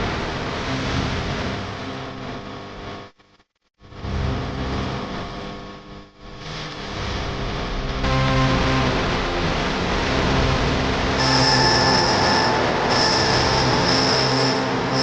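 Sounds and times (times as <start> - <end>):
rushing soundtrack with low drone: 6.9 - 15.0.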